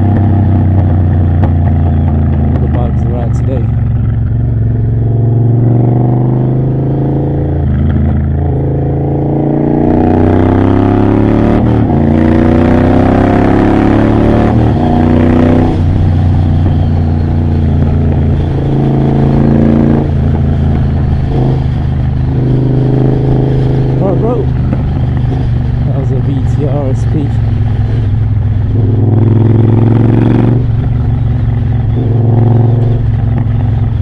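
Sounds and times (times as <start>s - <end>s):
motorcycle engine accelerating: 0.0s - 34.0s
wind rush: 14.5s - 34.0s.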